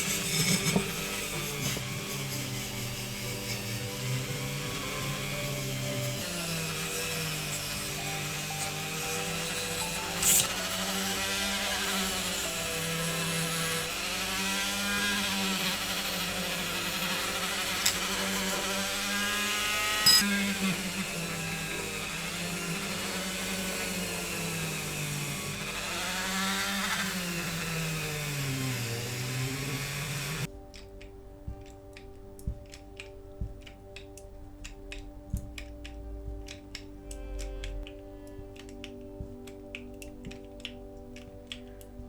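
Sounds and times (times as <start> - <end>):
rotary tool wire brush scrubbing metal: 0.0 - 30.5
sharp clicks: 30.6 - 42.0.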